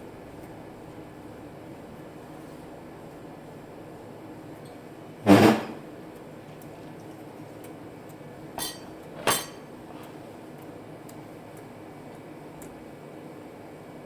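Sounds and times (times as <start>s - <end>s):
tableware clattering: 8.6s - 9.7s
tableware clinking: 8.6s - 9.7s.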